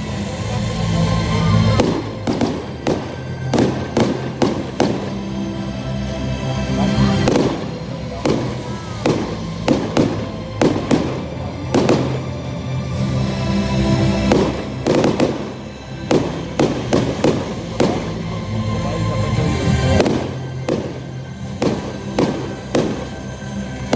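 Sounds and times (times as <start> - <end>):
music playing: 0.0 - 23.9
fireworks bangs and bursts: 1.6 - 5.9, 6.8 - 13.1, 13.7 - 23.9.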